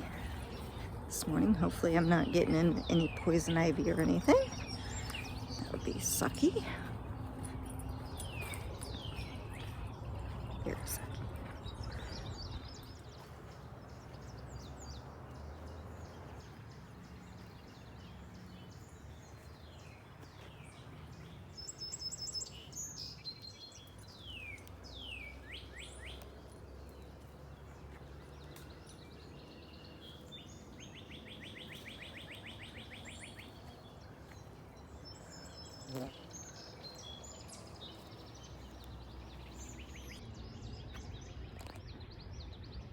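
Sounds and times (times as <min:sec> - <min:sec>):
steady low rumble: 0:00.0 - 0:21.7
songbirds chirping and singing: 0:00.0 - 0:42.9.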